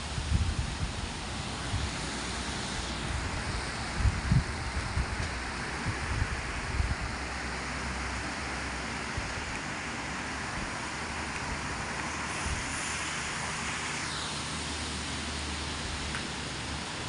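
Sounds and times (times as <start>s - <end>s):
wind buffeting microphone: 0.0s - 7.4s, 10.4s - 12.9s
wind and rain rushing: 0.0s - 17.0s.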